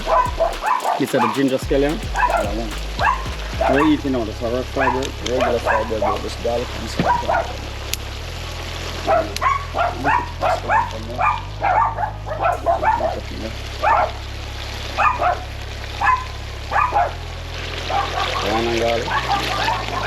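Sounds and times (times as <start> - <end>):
steady low hum: 0.0 - 0.8, 1.6 - 20.0
dog barking: 9.1 - 13.0, 15.0 - 15.4, 16.0 - 17.2, 17.9 - 20.0.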